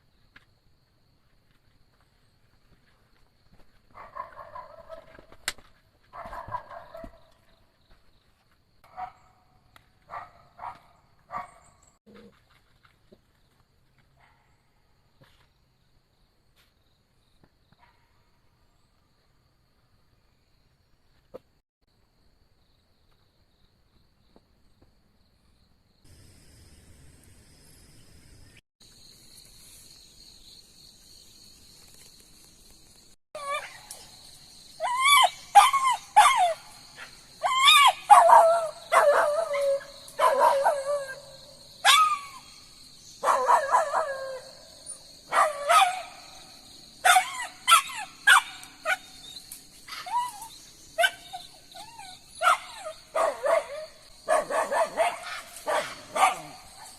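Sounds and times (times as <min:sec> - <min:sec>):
dog barking and yelping: 0:04.0 - 0:05.2, 0:06.2 - 0:07.3, 0:08.8 - 0:09.3, 0:33.4 - 0:34.1, 0:34.8 - 0:42.5, 0:43.2 - 0:46.4, 0:47.0 - 0:56.9
insects trilling: 0:25.6 - 0:56.9.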